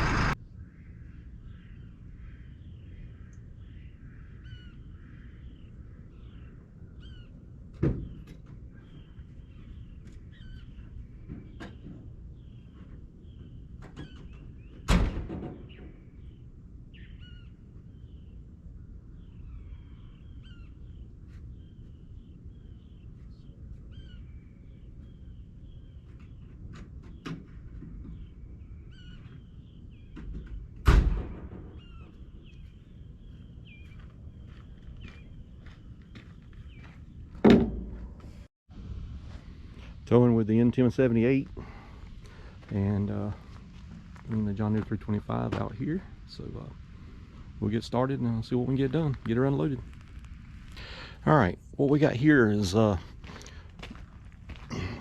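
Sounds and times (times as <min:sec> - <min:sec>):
small birds chirping: 0:00.0 - 0:14.9, 0:15.5 - 0:30.8, 0:31.7 - 0:37.4, 0:39.7 - 0:55.0
sharp loud bangs: 0:30.8 - 0:32.0.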